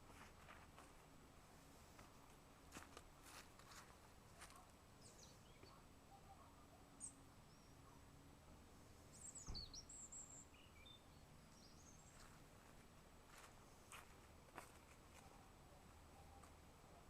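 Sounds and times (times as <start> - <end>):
faint bird chirps: 4.5 - 8.1, 9.1 - 12.4.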